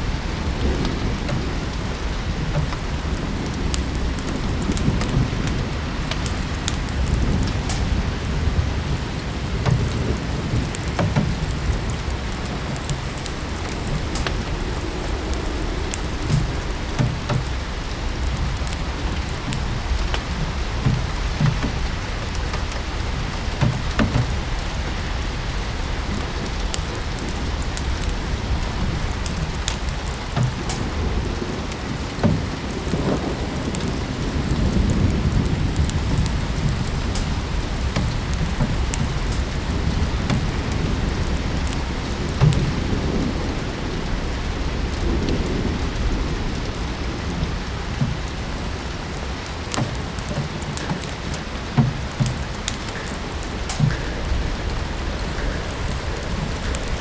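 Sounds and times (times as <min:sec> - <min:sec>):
fire crackling: 0:00.0 - 0:57.0
rain falling: 0:00.0 - 0:57.0
low rumble: 0:51.4 - 0:57.0.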